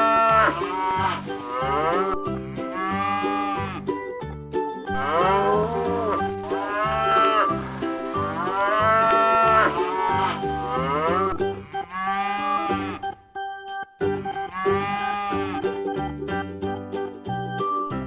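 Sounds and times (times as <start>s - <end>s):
cow mooing: 0.0s - 3.9s, 4.9s - 13.1s, 14.2s - 15.6s
children's music with steady beat: 0.0s - 18.0s.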